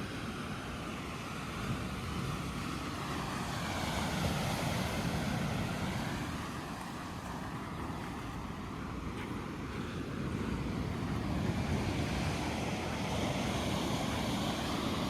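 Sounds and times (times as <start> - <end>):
ocean surf: 0.0 - 15.0
wind: 0.0 - 15.0.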